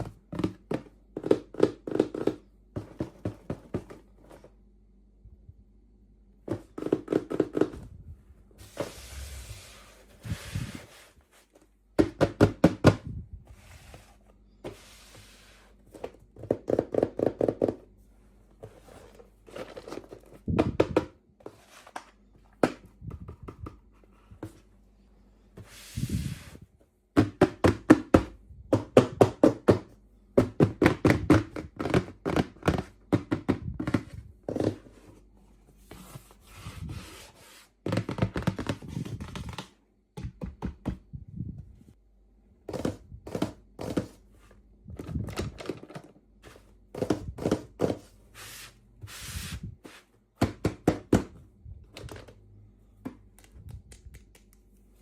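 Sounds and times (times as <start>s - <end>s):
packaging clicking and tapping: 0.0s - 4.4s, 6.5s - 7.8s, 27.2s - 34.9s, 37.8s - 41.0s, 45.0s - 48.1s.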